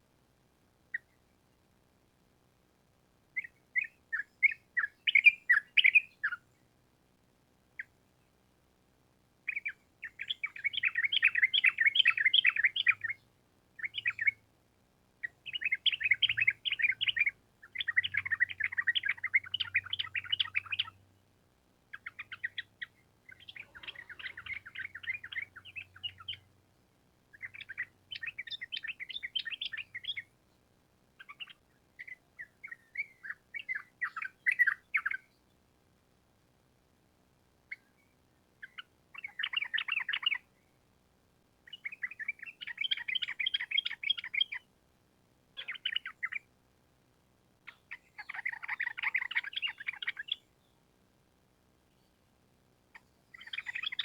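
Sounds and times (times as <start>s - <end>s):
bird chattering song: 3.4s - 6.5s, 9.5s - 13.2s, 13.8s - 14.4s, 15.2s - 21.0s, 21.9s - 26.5s, 27.3s - 30.3s, 31.2s - 35.4s, 37.7s - 40.5s, 41.7s - 44.7s, 45.6s - 46.5s, 47.7s - 50.5s, 52.9s - 54.0s.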